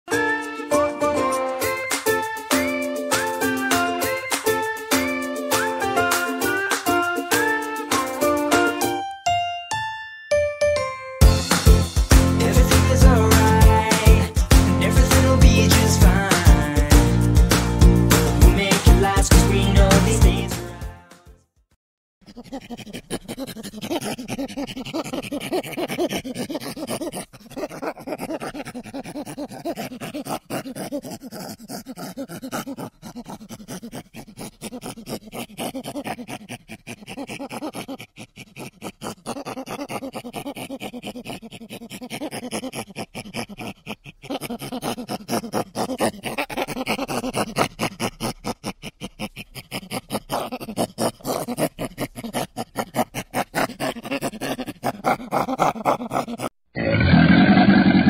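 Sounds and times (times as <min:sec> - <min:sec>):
chimpanzee grunting: 0:22.2 - 0:58.0
crocodile low growl: 0:22.4 - 0:58.0.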